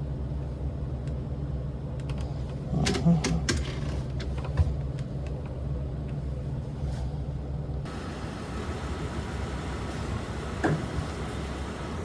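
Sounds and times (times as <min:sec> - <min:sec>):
engine idling: 0:07.9 - 0:12.0.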